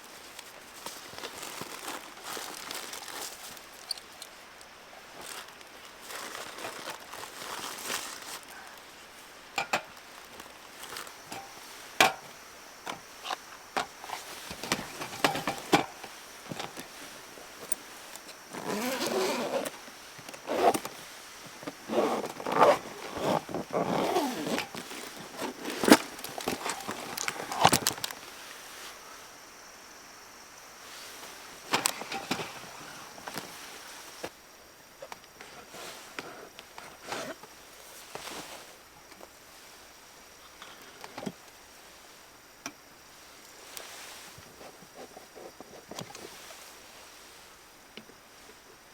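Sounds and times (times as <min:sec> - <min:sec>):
rustling and scraping: 0:00.0 - 0:04.4, 0:05.2 - 0:08.9, 0:09.6 - 0:29.0, 0:30.9 - 0:34.4, 0:35.0 - 0:39.2, 0:43.6 - 0:47.5
sharp handling clicks and knocks: 0:11.0 - 0:17.0.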